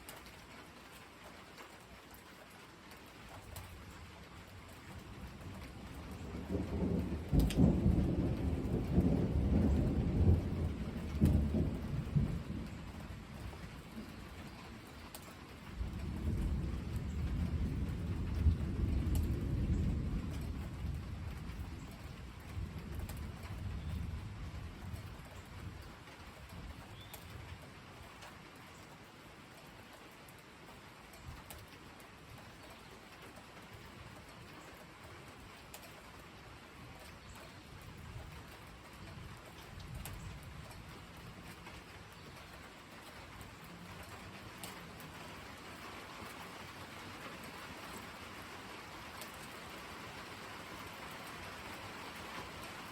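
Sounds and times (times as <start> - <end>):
rain hissing: 0.0 - 52.9
thunder rumble: 4.9 - 14.8, 15.6 - 25.8.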